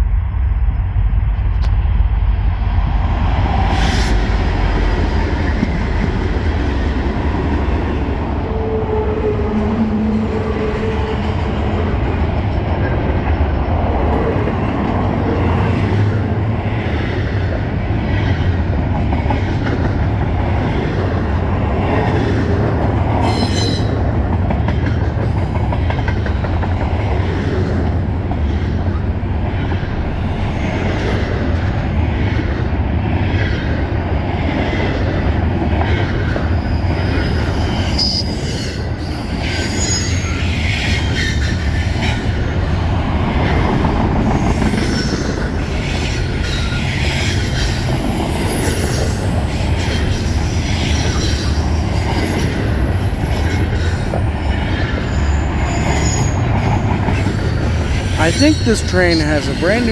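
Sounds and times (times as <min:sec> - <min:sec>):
steel wheels rumbling on rail: 0:00.0 - 0:59.9
clickety-clack over rail joints: 0:09.5 - 0:30.1, 0:39.4 - 0:58.2
high-pitched wheel squeals: 0:36.6 - 0:41.6, 0:54.8 - 0:57.0.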